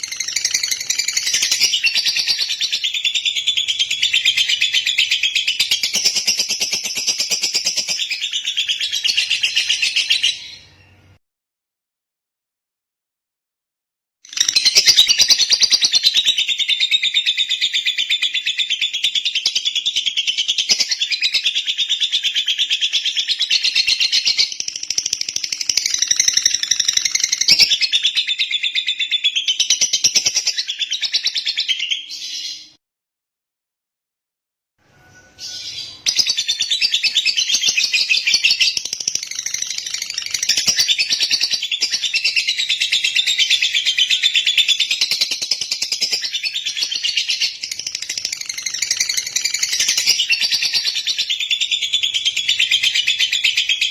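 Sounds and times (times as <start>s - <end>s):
lovebird chattering: 20.2s - 28.9s, 35.4s - 53.9s.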